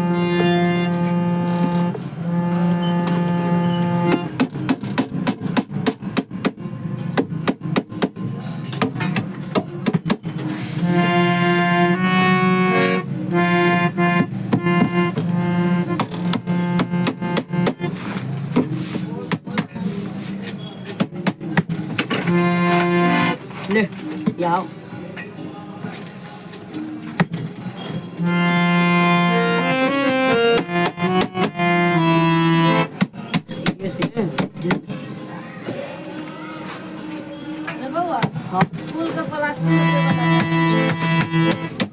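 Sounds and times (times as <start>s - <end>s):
harmonium chords: 0.0s - 4.7s, 10.2s - 18.8s, 21.4s - 23.9s, 27.0s - 34.7s, 38.4s - 41.9s
sharp clicks and taps: 14.0s - 17.9s, 30.2s - 31.8s, 40.0s - 41.9s.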